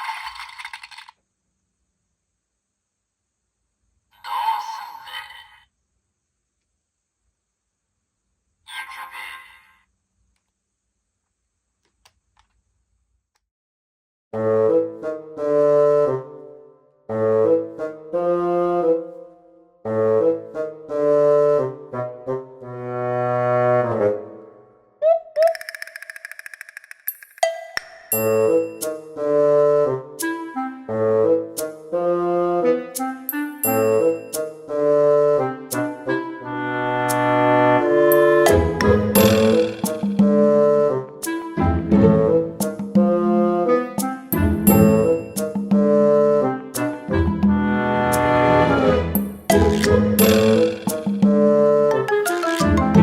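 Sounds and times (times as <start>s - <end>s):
music with brass-like notes: 34.7s - 53.0s.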